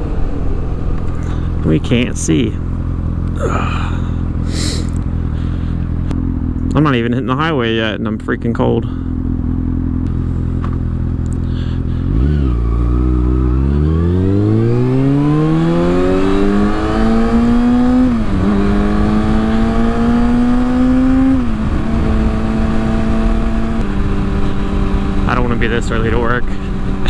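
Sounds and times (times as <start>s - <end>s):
motorcycle accelerating hard: 0.0s - 7.0s, 8.9s - 27.0s
wind noise on microphone: 13.6s - 27.0s.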